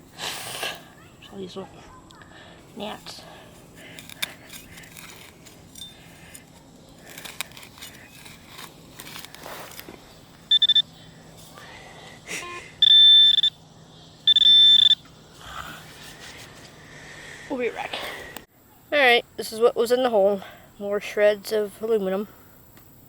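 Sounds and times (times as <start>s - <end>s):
soft scrapes and clicks: 3.8s - 10.0s
metal detector beeping: 10.5s - 11.0s, 12.3s - 13.6s, 14.2s - 15.1s.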